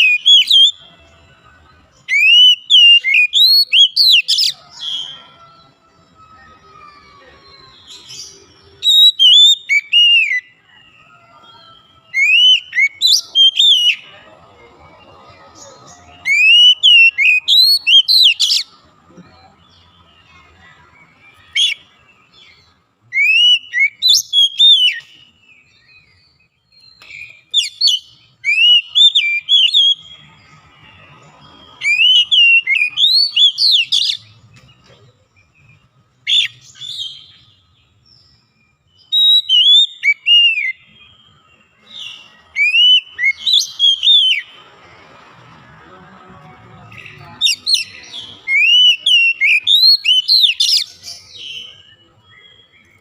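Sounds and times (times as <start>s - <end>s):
bird singing whistled phrases: 0.0s - 0.8s, 2.0s - 5.2s, 6.4s - 10.6s, 11.6s - 14.0s, 16.2s - 18.7s, 22.5s - 25.4s, 26.0s - 30.2s, 31.7s - 34.2s, 36.2s - 37.6s, 39.0s - 44.6s, 47.0s - 53.0s.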